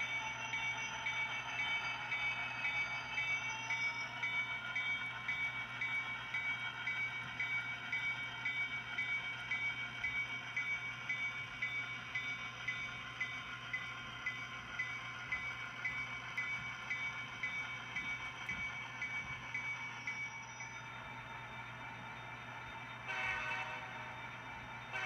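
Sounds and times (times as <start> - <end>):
locomotive bell ringing: 0.0 - 25.0.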